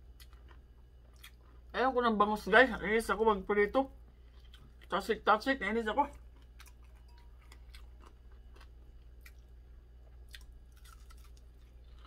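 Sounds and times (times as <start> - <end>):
chewing: 0.1 - 1.7, 4.2 - 4.9, 6.1 - 12.0.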